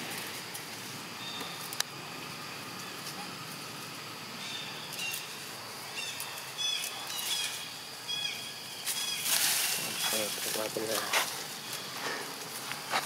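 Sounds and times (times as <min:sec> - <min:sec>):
outdoor hiss: 0:00.0 - 0:13.0
small birds chirping: 0:00.4 - 0:13.0.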